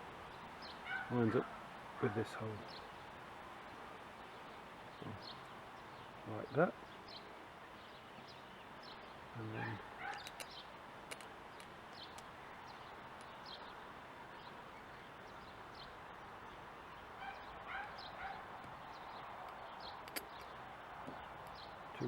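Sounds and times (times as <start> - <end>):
faint steady hiss: 0.0 - 22.0
short bird calls: 9.4 - 10.7
small clicks of carburettor parts: 10.1 - 12.3, 19.4 - 21.6.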